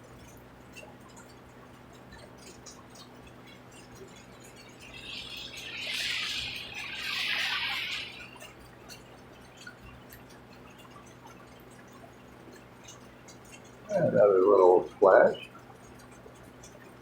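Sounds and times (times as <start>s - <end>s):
rainwater dripping: 0.2s - 17.0s
rushing splashing water hiss: 4.8s - 8.5s.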